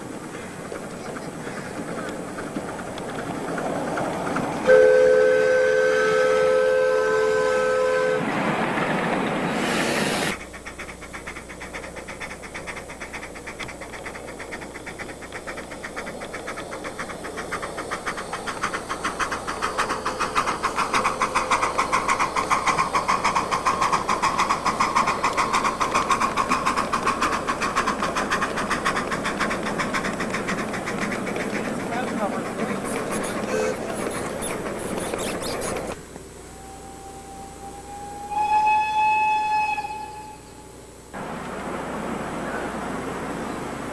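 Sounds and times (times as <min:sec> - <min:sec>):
miniature train running: 0:00.0 - 0:07.0, 0:08.7 - 0:36.0
multi-note train whistle: 0:04.6 - 0:08.3, 0:36.5 - 0:40.8
loud steam hiss: 0:08.2 - 0:10.6.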